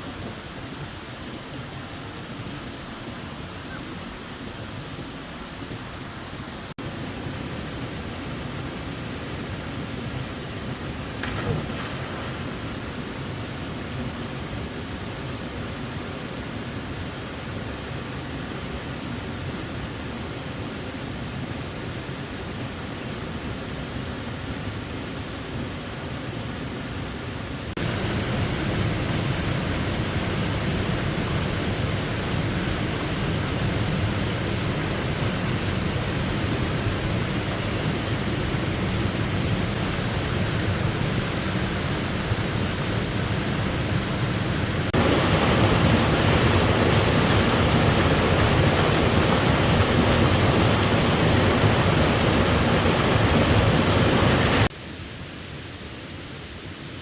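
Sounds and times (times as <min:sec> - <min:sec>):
waterfall rushing: 0:00.0 - 0:17.8, 0:27.8 - 0:54.7.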